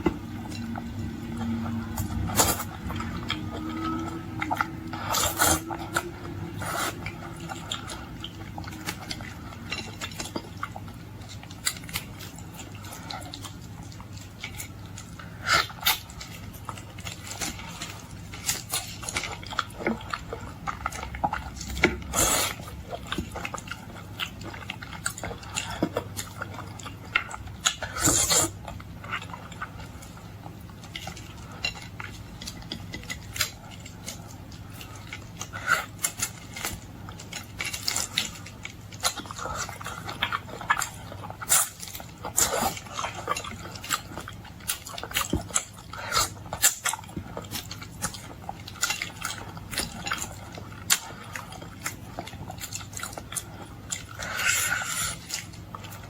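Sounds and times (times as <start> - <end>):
low hum: 0.0 - 13.8
chewing and mouth noises: 0.0 - 56.0.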